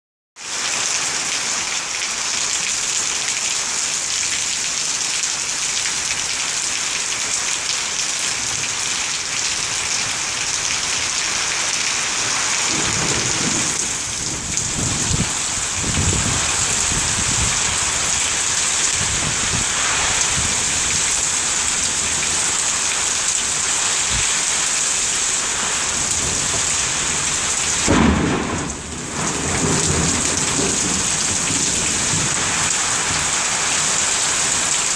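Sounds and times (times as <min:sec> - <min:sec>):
heavy rain pouring: 0:00.4 - 0:34.9
low thunder rumbling: 0:12.5 - 0:22.8, 0:25.5 - 0:33.6.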